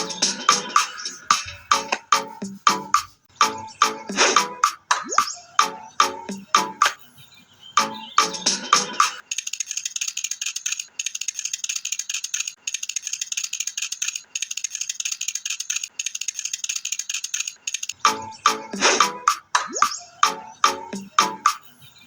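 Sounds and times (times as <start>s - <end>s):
music: 0.0s - 7.0s, 7.8s - 9.2s, 18.0s - 21.6s
fast high-pitched rattling: 8.5s - 18.1s.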